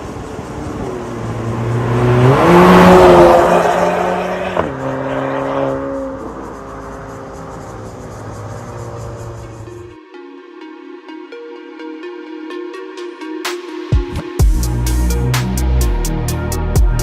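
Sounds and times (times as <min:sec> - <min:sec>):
car exhaust revving: 0:00.0 - 0:10.0
electronic background music: 0:00.9 - 0:17.0.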